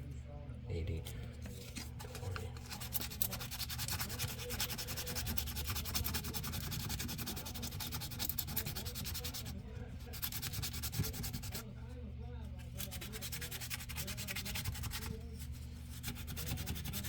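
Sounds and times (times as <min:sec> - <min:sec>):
sandpaper rubbing on wood: 0:02.7 - 0:09.5, 0:10.1 - 0:11.6, 0:12.8 - 0:15.1, 0:15.9 - 0:17.0.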